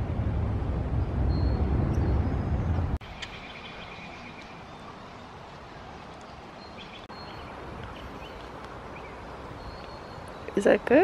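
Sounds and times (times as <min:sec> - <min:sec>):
loud low rumble: 0:00.0 - 0:03.0
birds chirping: 0:01.0 - 0:11.0.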